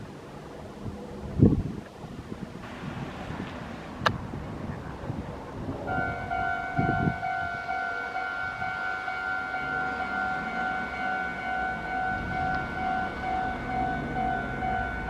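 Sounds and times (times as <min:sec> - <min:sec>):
high-pitched electronic tone: 0:05.9 - 0:15.0.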